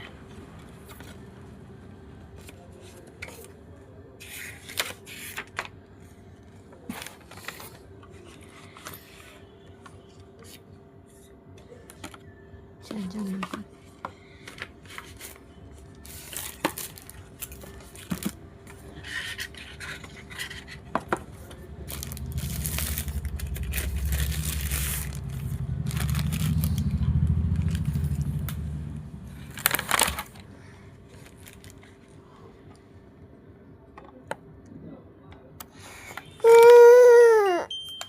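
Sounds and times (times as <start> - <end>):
packaging rustling: 16.0 - 18.4, 21.8 - 28.5, 29.3 - 30.5, 31.1 - 32.1
low rumble: 21.9 - 29.9.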